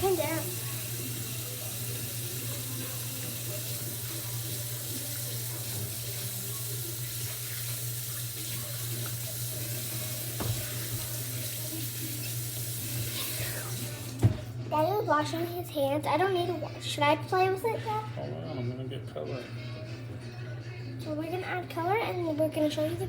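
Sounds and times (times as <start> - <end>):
person washing hands: 0.0 - 14.5
tap water running into sink: 0.0 - 14.5.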